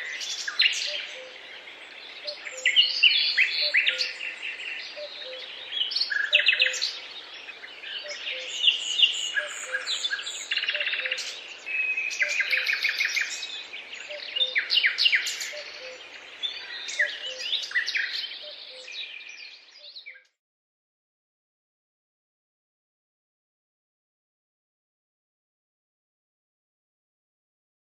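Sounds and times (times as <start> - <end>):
songbirds chirping and singing: 0.0 - 20.4.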